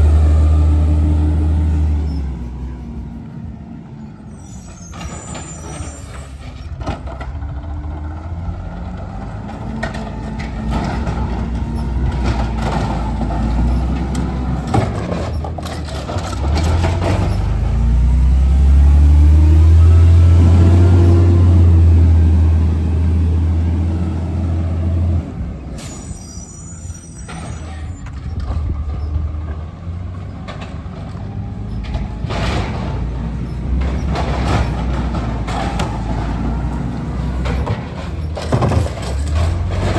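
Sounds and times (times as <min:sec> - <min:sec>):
garbage truck engine revving: 0:00.0 - 0:03.7, 0:06.8 - 0:25.8, 0:29.2 - 0:39.9
brake squeals: 0:00.8 - 0:07.3, 0:10.0 - 0:24.9, 0:25.6 - 0:39.9
air brake hissing: 0:25.7 - 0:27.8.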